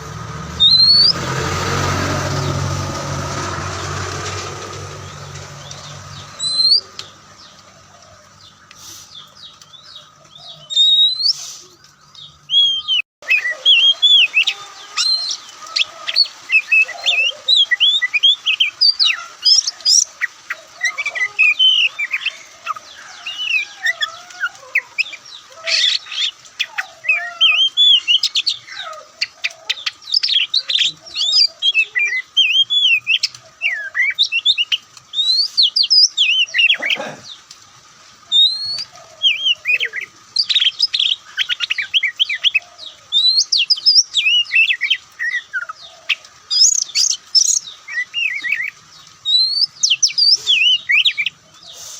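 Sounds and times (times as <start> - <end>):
bird singing whistled phrases: 0.6 - 1.2, 6.4 - 6.9, 10.6 - 11.5, 12.5 - 15.5, 38.3 - 45.7, 46.6 - 51.3.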